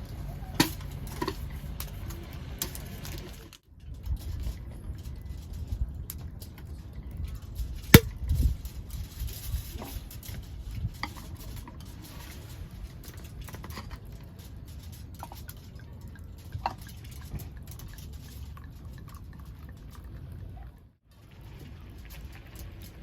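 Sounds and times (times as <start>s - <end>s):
beer pouring and fizzing: 15.0s - 23.0s.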